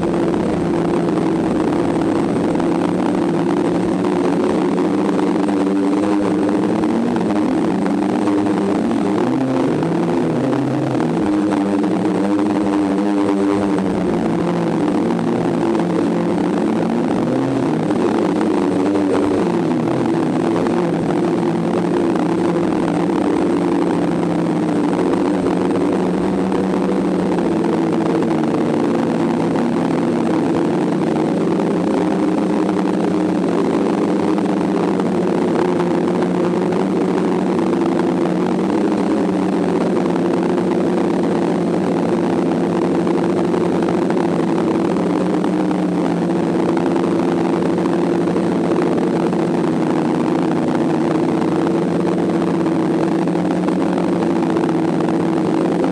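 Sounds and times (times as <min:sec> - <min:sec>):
drone motors humming: 0:00.0 - 0:55.9.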